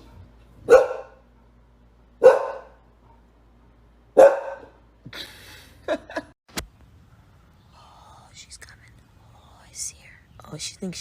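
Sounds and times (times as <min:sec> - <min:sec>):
dog barking: 0:00.0 - 0:01.3, 0:02.2 - 0:02.8, 0:04.1 - 0:04.8
sharp click: 0:06.5 - 0:06.7.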